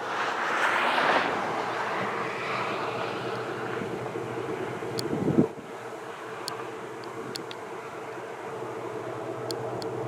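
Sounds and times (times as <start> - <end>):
vehicle hum: 0.0 - 10.0
faint light ticks: 6.4 - 7.6, 9.4 - 10.0.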